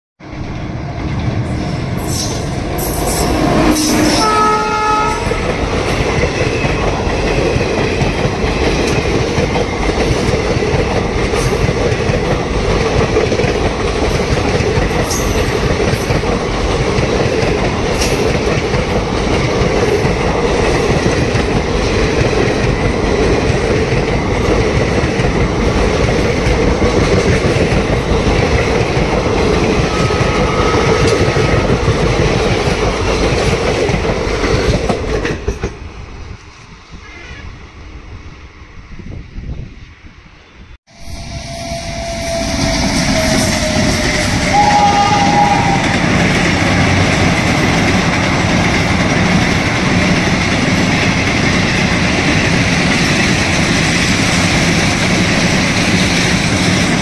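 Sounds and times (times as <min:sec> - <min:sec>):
train wheels rumbling on rails: 0:00.2 - 0:57.0
locomotive horn blast: 0:02.8 - 0:05.4, 0:41.2 - 0:46.2.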